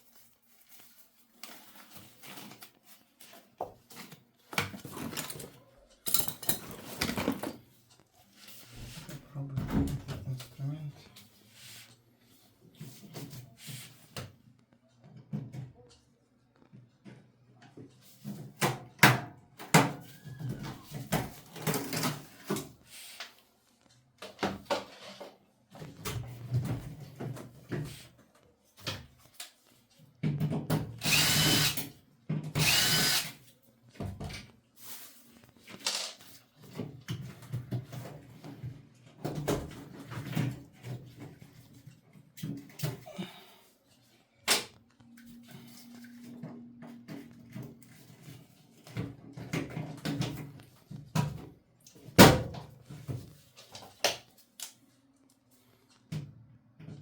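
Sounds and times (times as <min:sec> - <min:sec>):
tools and metal parts rattling: 0:04.8 - 0:07.5
power drill running: 0:31.0 - 0:31.9, 0:32.6 - 0:33.4.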